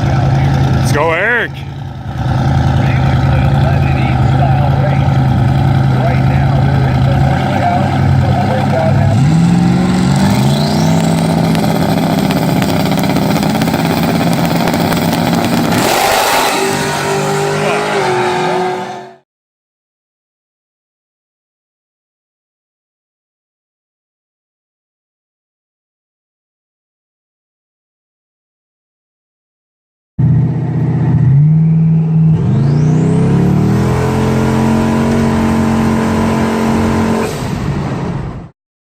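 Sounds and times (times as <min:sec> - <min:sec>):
drag car engine revving: 0:00.0 - 0:19.2, 0:30.2 - 0:38.5
turbo whine: 0:02.7 - 0:19.2, 0:30.2 - 0:37.2
thin rising whistle: 0:31.3 - 0:33.1.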